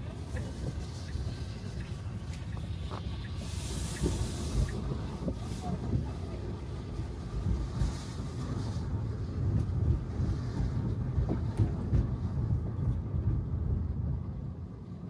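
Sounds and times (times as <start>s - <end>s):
tyre hiss: 2.3s - 5.8s.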